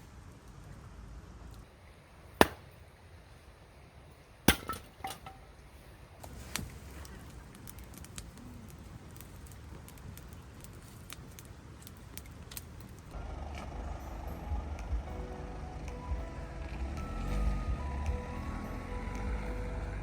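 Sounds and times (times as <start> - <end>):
sharp knocks of hard objects: 2.4 - 2.8, 4.5 - 5.4
light clicks and ticks: 6.2 - 13.7.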